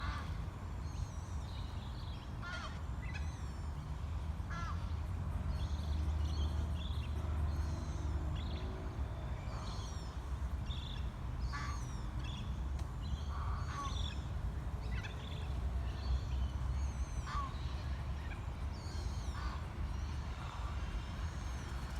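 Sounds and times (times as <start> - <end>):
birds calling: 6.4 - 21.9.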